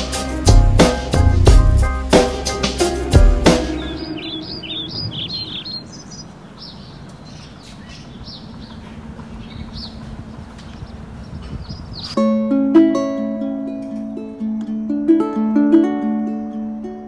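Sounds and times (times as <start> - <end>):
steady background hiss: 1.9 - 17.0
small birds chirping: 3.4 - 12.2.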